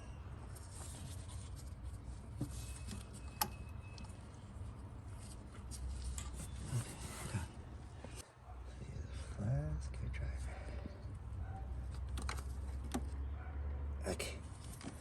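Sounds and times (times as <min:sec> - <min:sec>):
rubbing and scraping on parts: 0:00.4 - 0:08.2.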